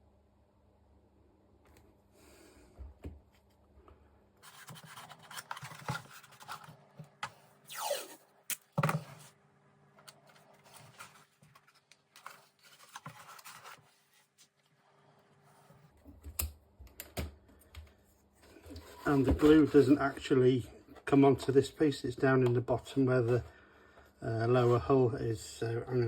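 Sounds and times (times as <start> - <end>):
short falling squeak: 7.7 - 8.2.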